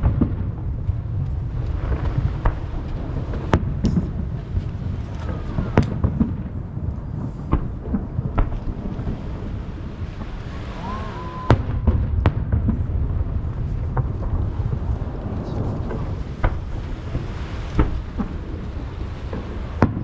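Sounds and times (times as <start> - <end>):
fireworks bursting: 0.0 - 20.0
low rumble of echo and wind: 0.0 - 20.0.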